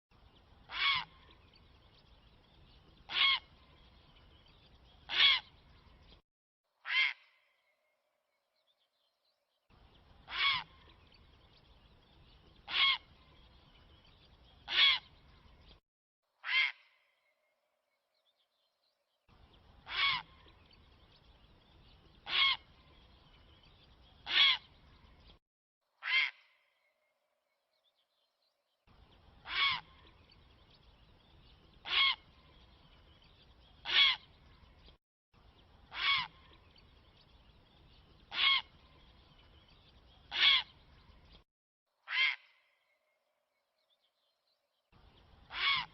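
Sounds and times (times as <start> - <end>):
recorded bird call: 0.1 - 6.2, 6.8 - 15.8, 16.4 - 17.6, 18.2 - 25.4, 26.0 - 41.4, 42.0 - 45.9.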